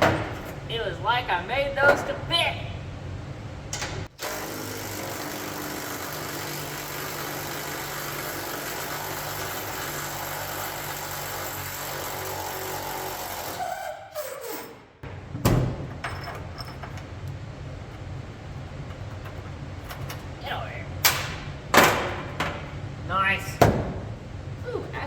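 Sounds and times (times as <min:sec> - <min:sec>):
machine humming and hissing: 0:02.8 - 0:13.8.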